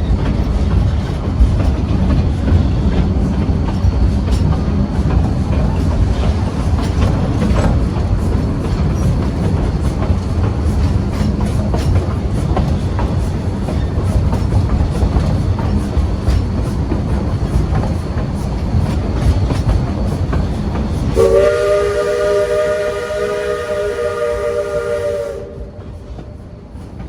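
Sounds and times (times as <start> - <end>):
train wheel clicks: 0.0 - 21.6
train rumbling: 0.0 - 27.0
steam whistle chord: 21.2 - 25.9.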